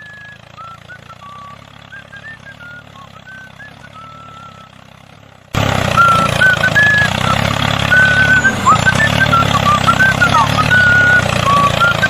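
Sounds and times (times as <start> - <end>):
engine idling: 0.0 - 12.0
short high chirps: 6.0 - 12.0.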